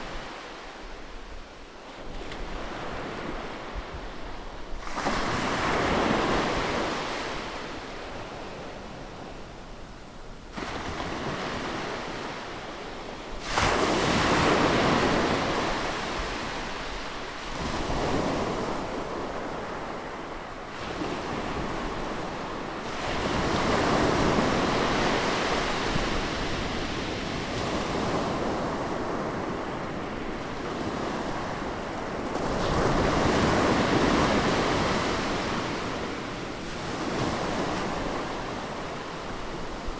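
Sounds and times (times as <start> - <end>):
ocean waves breaking on shore: 10.5 - 39.9.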